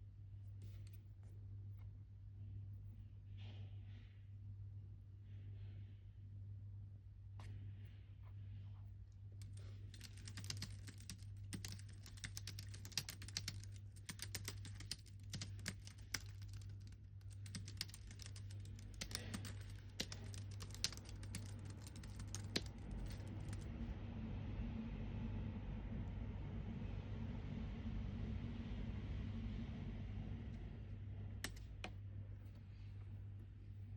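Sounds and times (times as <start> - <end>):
steady low hum: 0.0 - 33.9
typing on computer keyboard: 9.4 - 23.7, 31.4 - 31.9.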